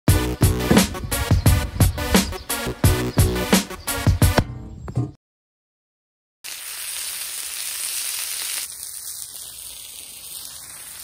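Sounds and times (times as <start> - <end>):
meat sizzling on a griddle: 6.4 - 11.0.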